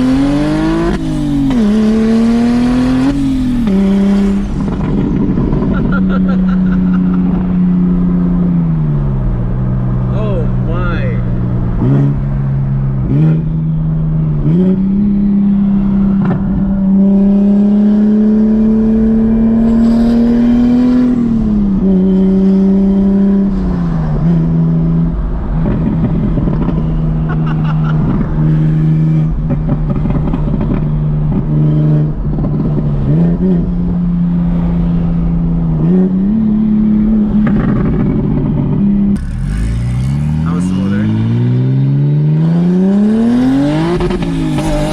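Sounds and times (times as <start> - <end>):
turbocharged engine accelerating: 0.0 - 44.9
exhaust crackling: 35.1 - 44.9.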